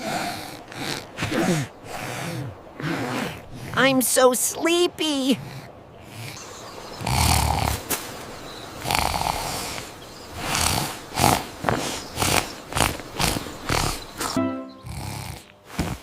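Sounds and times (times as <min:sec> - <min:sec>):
cartoon snoring: 0:07.0 - 0:07.8, 0:08.8 - 0:09.8, 0:10.4 - 0:16.0.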